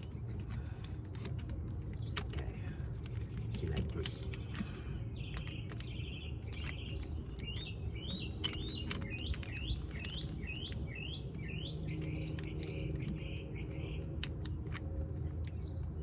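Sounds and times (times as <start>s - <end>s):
low background hum: 0.0s - 16.0s
small bird chirping and trilling: 3.2s - 16.0s.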